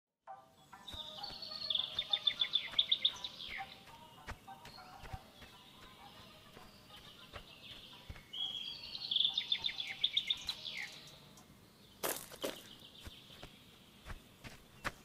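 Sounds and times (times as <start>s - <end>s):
bird trill of high notes: 0.3s - 11.2s
songbirds singing: 0.3s - 15.0s
falling bird chirp: 0.6s - 15.0s.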